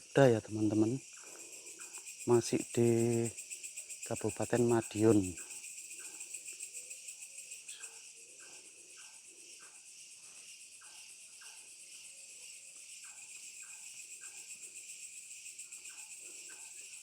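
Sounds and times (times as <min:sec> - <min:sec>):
frogs calling: 0:00.0 - 0:12.1
crickets trilling: 0:00.0 - 0:17.0.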